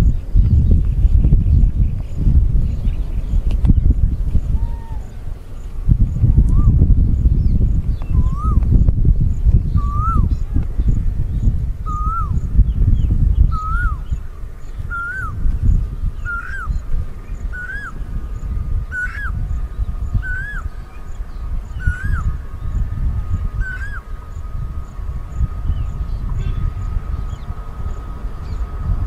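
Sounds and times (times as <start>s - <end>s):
faint steady whine: 0.0s - 29.0s
low rumble: 0.0s - 29.0s
bird calling: 8.0s - 8.7s, 9.6s - 11.0s, 11.8s - 12.5s, 13.3s - 28.8s.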